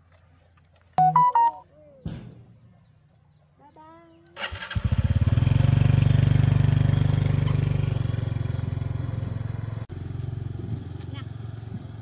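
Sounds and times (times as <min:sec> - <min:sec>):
small engine idling: 0:04.4 - 0:12.0.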